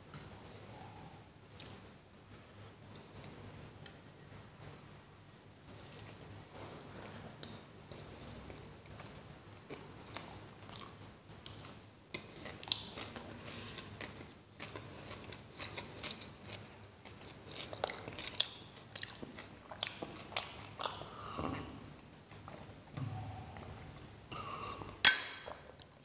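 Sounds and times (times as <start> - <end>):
person chewing crunchy onion: 12.2 - 21.6.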